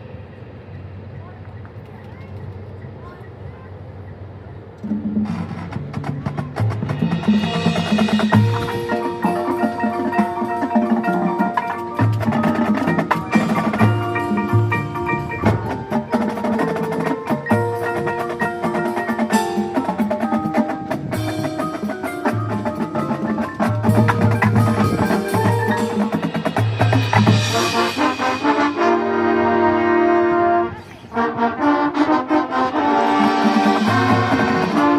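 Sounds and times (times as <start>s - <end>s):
mallet percussion: 4.8s - 28.8s
marching band playing: 4.8s - 34.9s.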